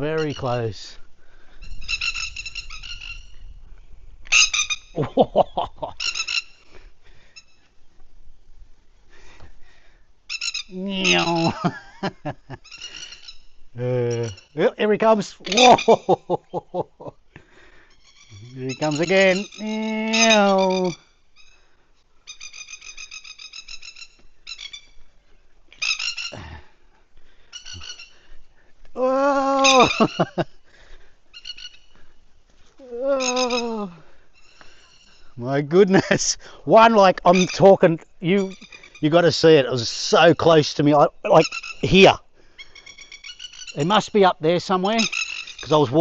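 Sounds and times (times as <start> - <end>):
plover alarm calls: 0.0 - 0.8, 1.4 - 3.5, 4.3 - 7.8, 10.2 - 16.2, 17.5 - 28.7, 29.6 - 32.2, 33.2 - 35.4, 36.9 - 39.2, 41.2 - 46.0.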